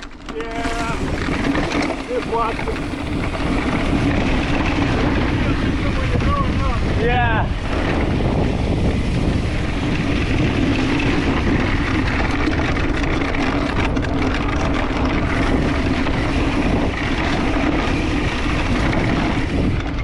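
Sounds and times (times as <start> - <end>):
bike tyres rolling on dirt: 0.0 - 20.0
wind rushing over microphone: 0.0 - 20.0.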